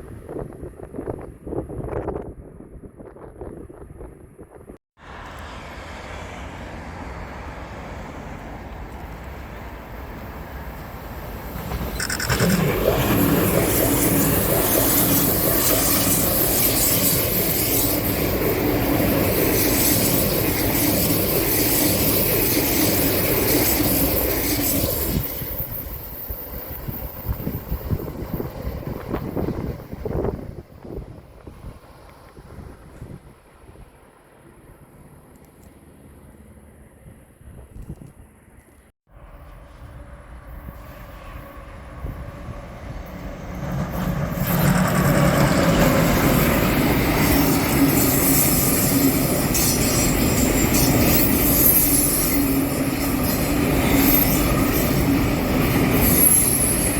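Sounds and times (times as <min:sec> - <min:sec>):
train passing: 0:05.0 - 0:37.2, 0:38.5 - 0:56.9.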